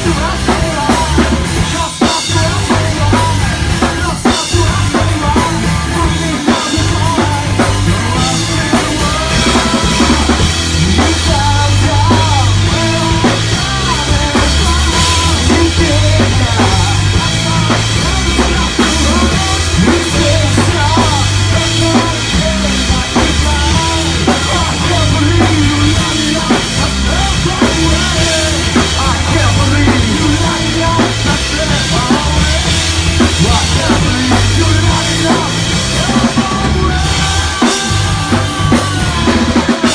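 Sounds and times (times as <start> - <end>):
rock band playing instrumental: 0.0 - 39.9.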